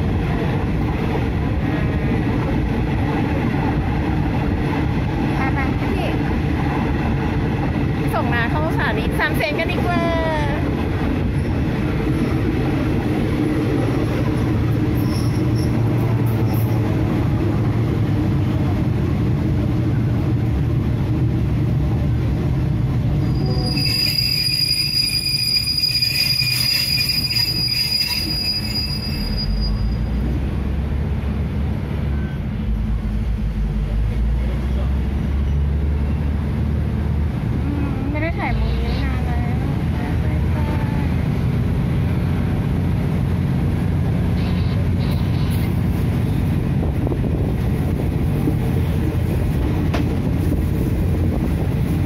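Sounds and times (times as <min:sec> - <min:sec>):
train rumbling on rails: 0:00.0 - 0:52.0
wheels squealing on rails: 0:13.5 - 0:17.1, 0:23.1 - 0:30.4.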